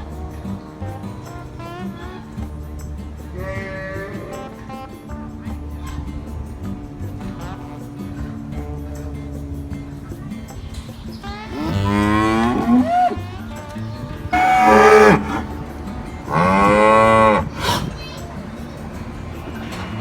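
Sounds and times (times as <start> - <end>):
cows mooing: 11.4 - 18.4.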